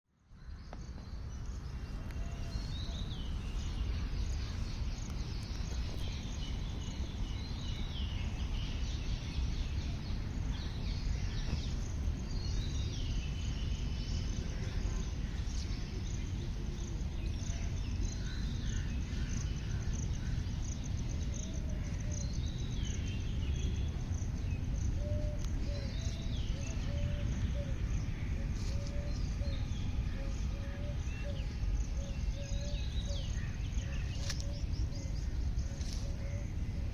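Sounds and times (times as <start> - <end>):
lower bird call repeated notes: 9.4 - 36.9.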